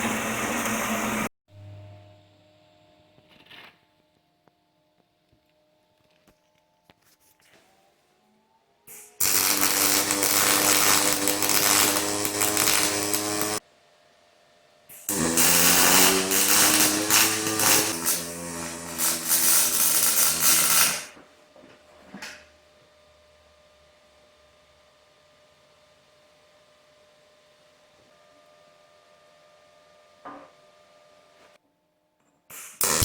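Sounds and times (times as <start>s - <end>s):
angle grinder grinding metal: 8.9s - 13.6s, 14.9s - 21.2s, 32.8s - 33.0s.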